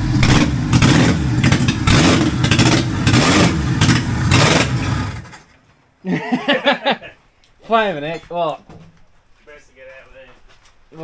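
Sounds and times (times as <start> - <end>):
petrol engine revving: 0.0 - 5.4.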